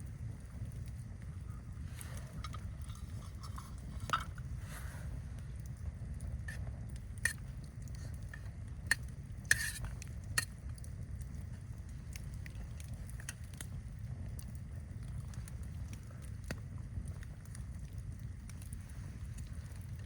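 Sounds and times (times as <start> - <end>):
campfire crackling: 0.0 - 20.0.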